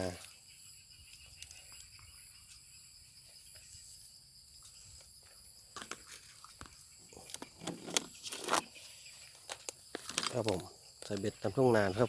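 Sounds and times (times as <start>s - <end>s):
crickets chirring: 0.0s - 12.0s
rustling and crunching: 3.3s - 11.4s.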